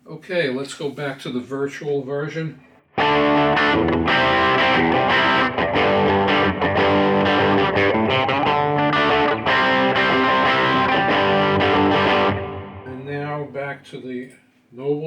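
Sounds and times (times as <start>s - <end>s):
overdriven electric guitar riff: 2.9s - 12.9s.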